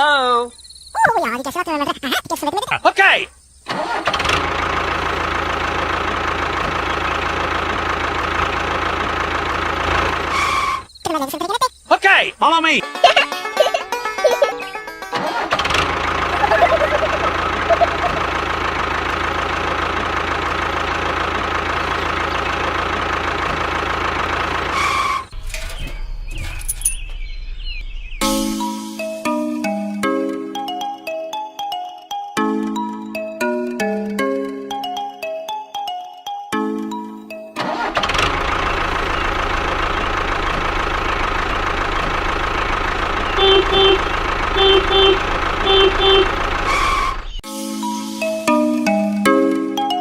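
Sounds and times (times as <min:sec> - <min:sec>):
engine running steadily: 0:03.7 - 0:10.9, 0:14.8 - 0:27.2, 0:37.6 - 0:47.4
horn beeping: 0:10.2 - 0:10.9, 0:16.3 - 0:18.4, 0:24.7 - 0:25.3, 0:43.3 - 0:47.4
scattered chirping tones: 0:16.3 - 0:18.4, 0:43.3 - 0:47.4
mallet percussion tune: 0:16.4 - 0:18.2.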